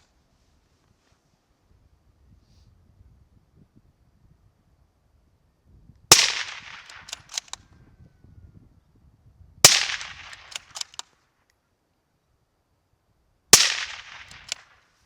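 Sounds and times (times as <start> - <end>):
suppressed rifle shots: 6.1 - 7.6, 9.6 - 11.1, 13.5 - 14.8.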